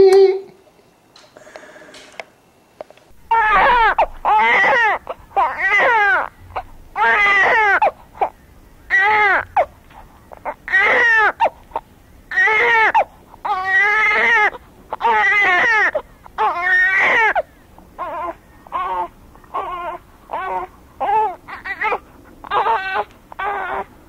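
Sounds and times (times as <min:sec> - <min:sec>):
adult imitating baby crying: 0:00.0 - 0:00.6, 0:12.3 - 0:17.4.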